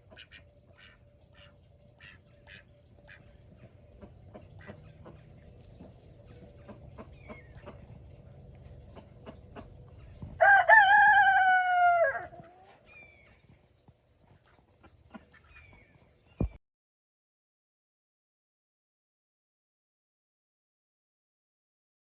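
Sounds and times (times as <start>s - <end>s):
rooster crowing: 10.4s - 12.5s.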